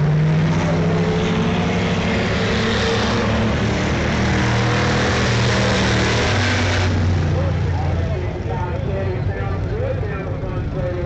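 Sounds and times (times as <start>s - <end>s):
race car engines at speed: 0.0s - 11.0s.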